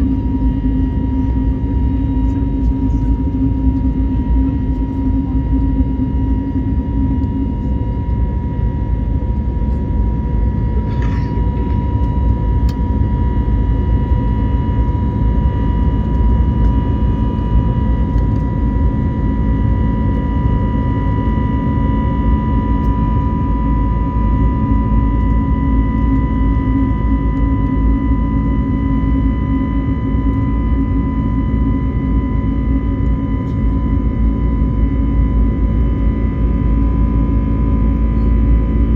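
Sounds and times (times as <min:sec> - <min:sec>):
airplane cabin rumble: 0:00.0 - 0:38.9
jet engine whine: 0:00.0 - 0:38.9.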